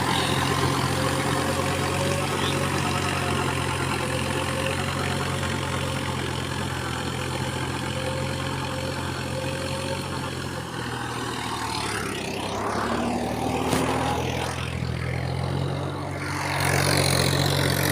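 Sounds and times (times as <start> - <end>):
tractor diesel engine running: 0.0 - 17.9
rising and falling noise: 11.7 - 16.8.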